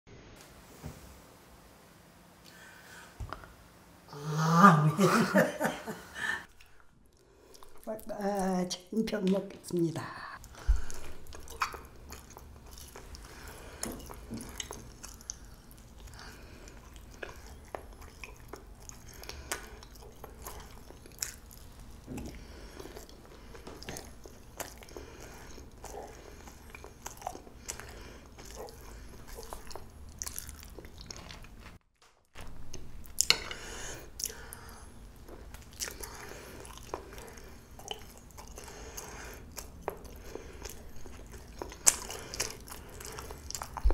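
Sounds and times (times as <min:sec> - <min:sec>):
chewing soft rice cake: 0:10.4 - 0:43.9.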